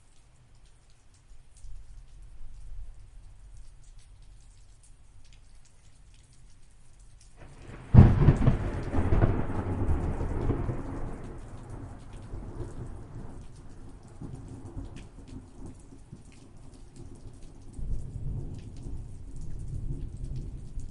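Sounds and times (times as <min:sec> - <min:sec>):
light rain pattering: 0:00.0 - 0:20.9
thunderclap rolling: 0:07.4 - 0:13.2.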